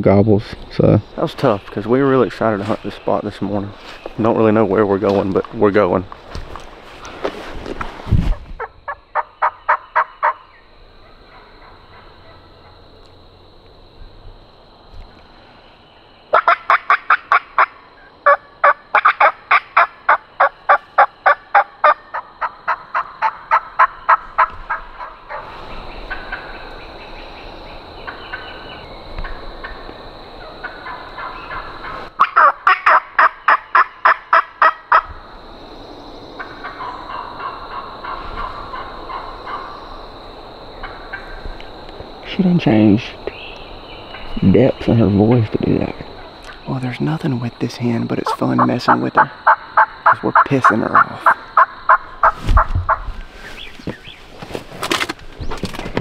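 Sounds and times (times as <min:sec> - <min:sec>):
turkey yelping: 0:08.6 - 0:10.4, 0:11.0 - 0:12.8, 0:16.3 - 0:25.4, 0:30.6 - 0:35.1, 0:36.4 - 0:39.8, 0:48.2 - 0:53.0.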